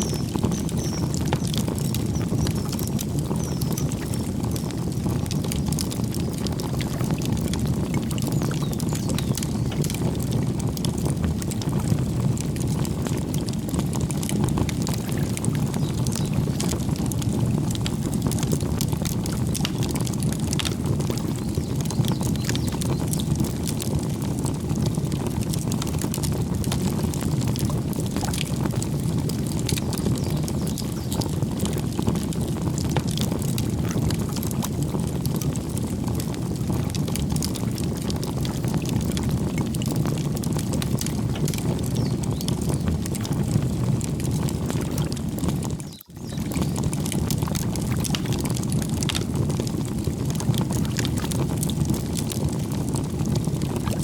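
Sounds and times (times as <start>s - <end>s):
burning wood crackling: 0.0s - 54.0s
campfire flame rushing: 0.1s - 54.0s.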